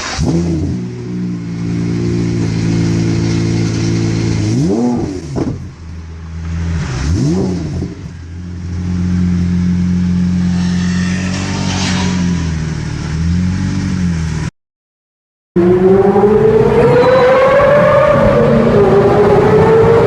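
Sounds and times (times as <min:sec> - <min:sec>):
car engine revving: 0:00.0 - 0:14.5, 0:15.6 - 0:20.0
car engine running: 0:00.0 - 0:14.5.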